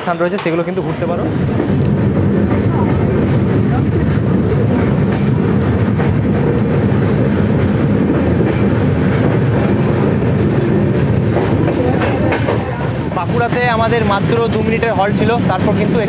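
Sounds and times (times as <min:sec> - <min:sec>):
train wheels rumbling on track: 0:00.0 - 0:16.0.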